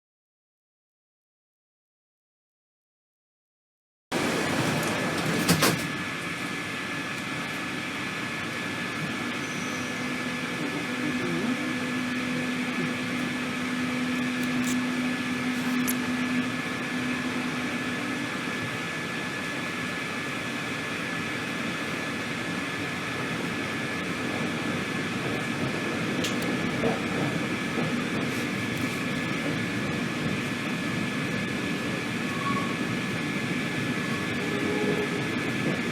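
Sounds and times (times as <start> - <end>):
train carriage mechanical hum: 4.1 - 35.9.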